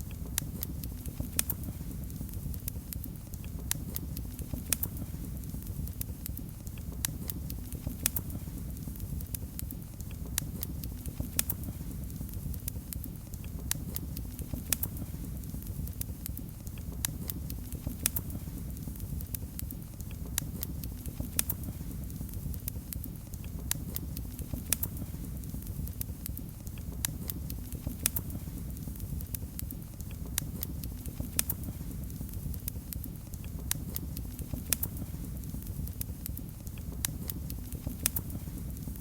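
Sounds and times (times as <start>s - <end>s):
low rumble of flames: 0.0s - 39.0s
wood fire crackling: 0.0s - 39.0s.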